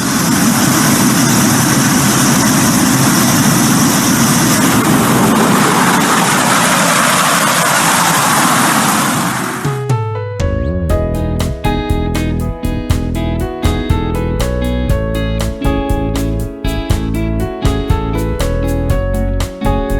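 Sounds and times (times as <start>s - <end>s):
jet aircraft engine and airflow: 0.0s - 10.4s.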